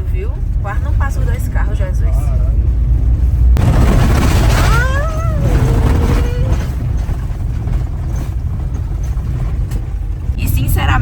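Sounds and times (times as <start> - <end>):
vehicle rumbling over gravel: 2.6 - 10.4.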